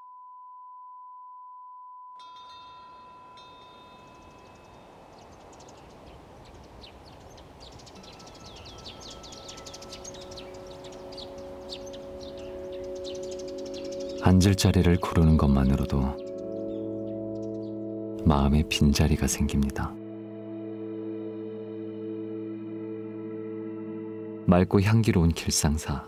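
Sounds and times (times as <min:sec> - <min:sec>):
pure ringing tone: 0:00.0 - 0:05.1, 0:08.0 - 0:13.9
steady outdoor hiss: 0:02.2 - 0:17.6
small birds chirping: 0:03.4 - 0:19.8
low sustained tones: 0:08.0 - 0:24.5.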